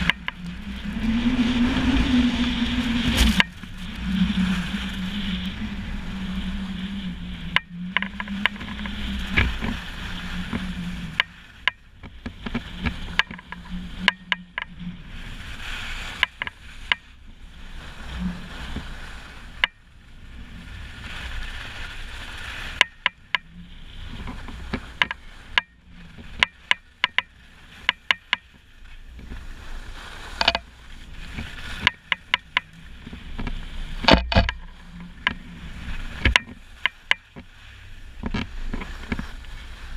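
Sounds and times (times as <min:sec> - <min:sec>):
wind buffeting microphone: 0:00.0 - 0:39.9
sharp knocks and clicks: 0:26.4 - 0:28.5, 0:30.4 - 0:30.6, 0:33.4 - 0:35.4, 0:36.2 - 0:37.2.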